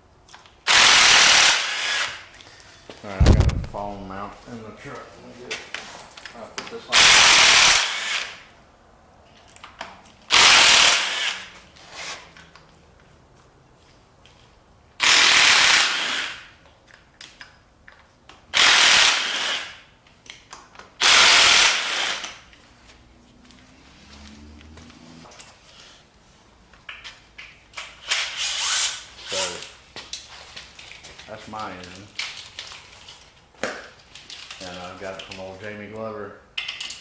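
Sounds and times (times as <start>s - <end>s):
power tool undoing bolts: 0.7s - 2.3s, 6.0s - 8.4s, 10.3s - 11.6s, 15.0s - 16.6s, 18.5s - 19.8s, 21.0s - 22.5s, 27.8s - 29.5s.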